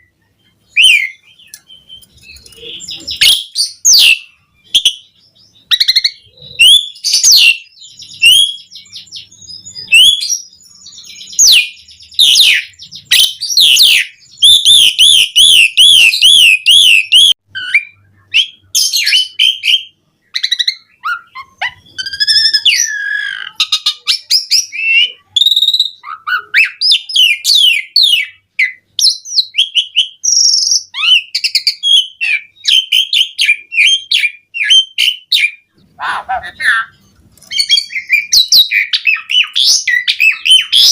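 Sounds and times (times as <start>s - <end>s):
starling singing varied song: 0.0s - 40.9s.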